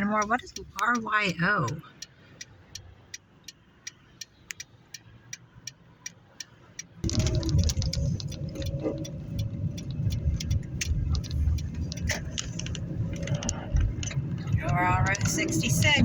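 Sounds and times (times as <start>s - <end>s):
car engine and road noise: 0.0s - 16.0s
car turn signal clicking: 0.0s - 16.0s.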